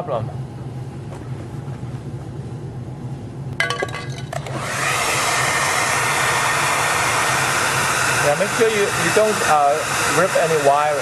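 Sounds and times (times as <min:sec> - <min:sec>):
low steady hum: 0:00.0 - 0:04.8
hair dryer running: 0:04.3 - 0:11.0.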